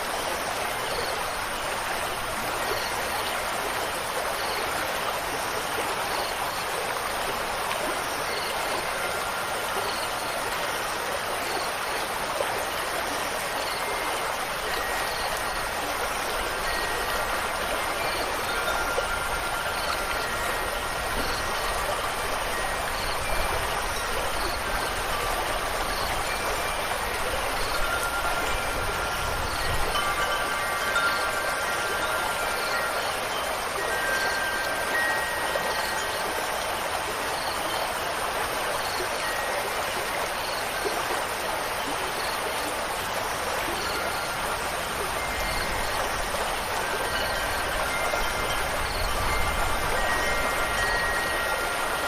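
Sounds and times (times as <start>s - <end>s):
rushing water: 0.0s - 52.0s
wind chimes ringing: 13.3s - 38.0s, 43.0s - 52.0s.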